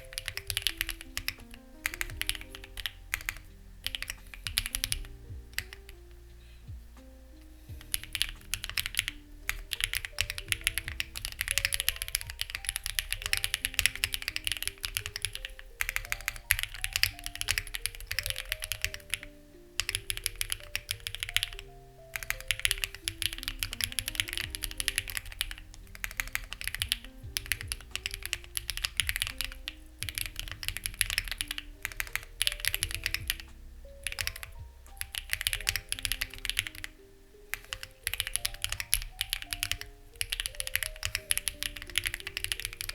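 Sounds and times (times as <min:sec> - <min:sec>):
fast typing on mechanical keyboard: 0:00.0 - 0:06.0, 0:07.8 - 0:36.9, 0:37.5 - 0:42.9
soft background music: 0:00.0 - 0:42.9.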